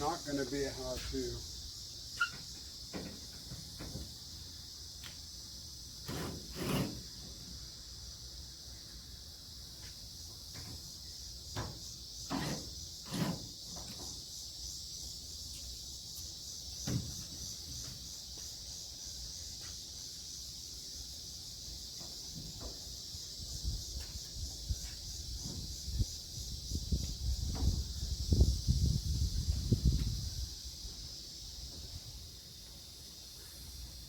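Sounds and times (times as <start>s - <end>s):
steady high-pitched hiss: 0.0s - 34.0s
dull knocks and thuds: 16.8s - 18.0s.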